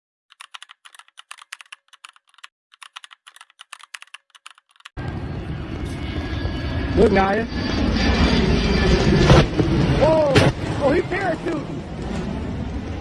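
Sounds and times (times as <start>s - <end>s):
keyboard typing clicks: 0.3s - 5.0s
low outdoor rumbling: 5.0s - 13.0s.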